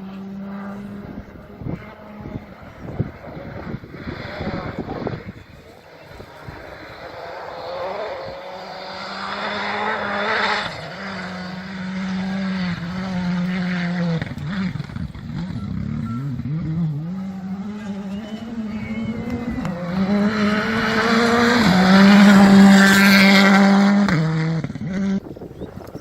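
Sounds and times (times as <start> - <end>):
rally car engine revving: 0.0 - 25.4.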